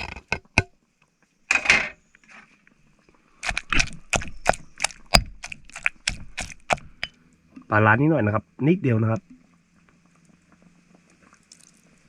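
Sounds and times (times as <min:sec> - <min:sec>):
pestle pounding in mortar: 0:03.4 - 0:07.1.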